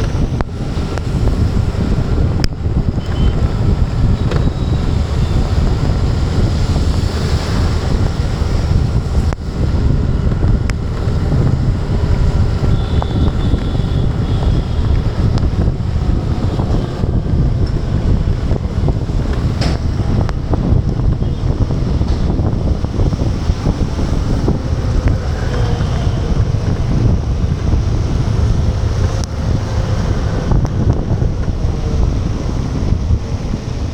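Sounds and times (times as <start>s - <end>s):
wind buffeting microphone: 0.0s - 33.9s.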